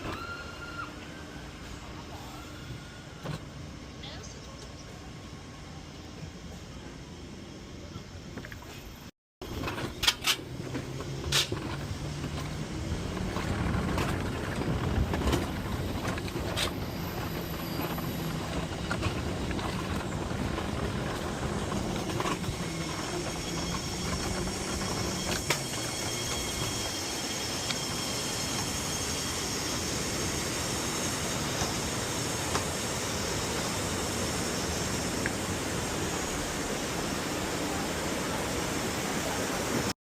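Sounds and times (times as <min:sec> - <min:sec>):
coaster cart wheels rumbling on rail: 0:00.0 - 0:39.9.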